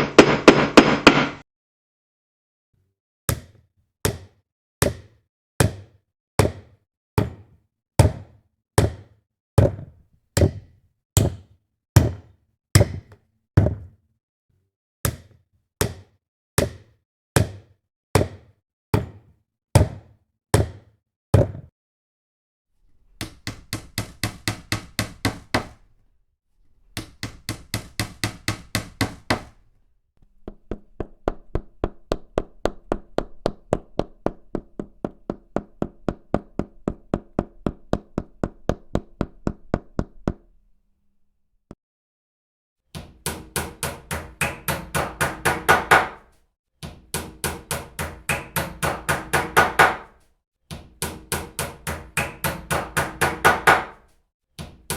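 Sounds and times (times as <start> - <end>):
hammer striking repeatedly: 0.0 - 1.4, 23.2 - 25.8, 27.0 - 29.6, 43.0 - 54.0.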